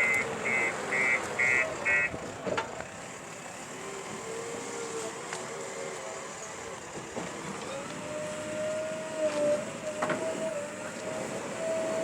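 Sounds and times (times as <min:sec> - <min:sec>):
reversing alarm beeping: 0:00.0 - 0:02.1
diesel engine running: 0:00.0 - 0:12.0.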